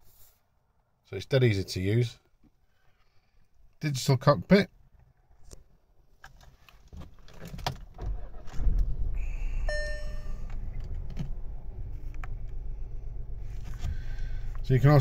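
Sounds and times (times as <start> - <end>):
car engine starting and idling: 7.6 - 15.0
dashboard warning chime: 9.6 - 10.8.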